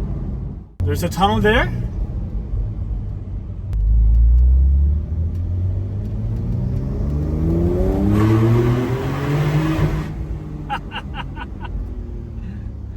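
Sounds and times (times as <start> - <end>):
car engine revving: 3.8 - 12.9.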